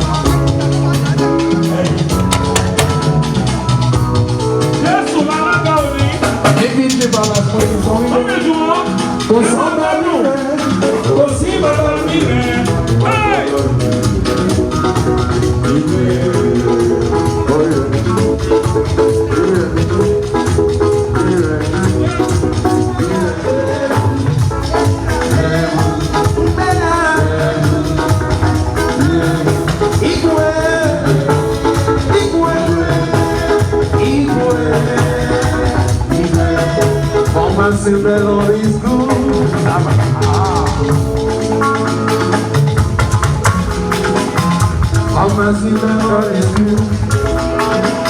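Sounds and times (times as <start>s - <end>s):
music with a steady beat: 0.0s - 48.0s
shaker rattling percussion: 0.0s - 48.0s.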